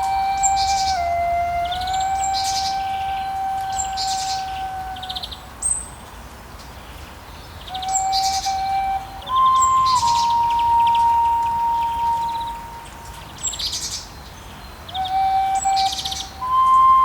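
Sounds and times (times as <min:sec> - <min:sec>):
flute holding long notes: 0:00.0 - 0:05.5, 0:07.7 - 0:13.3, 0:14.9 - 0:17.0
birds chirping and trilling: 0:00.0 - 0:06.1, 0:06.8 - 0:17.0.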